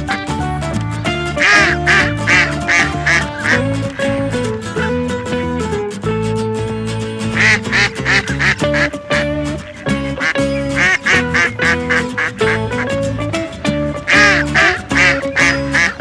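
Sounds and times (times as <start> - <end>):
background music with bass: 0.0 - 16.0
duck quacking: 1.0 - 4.2, 7.3 - 12.8, 14.1 - 16.0.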